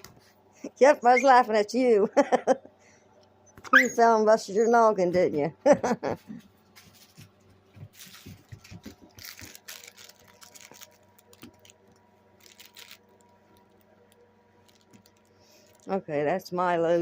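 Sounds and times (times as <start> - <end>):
dog paws clicking on floor: 4.7 - 10.2.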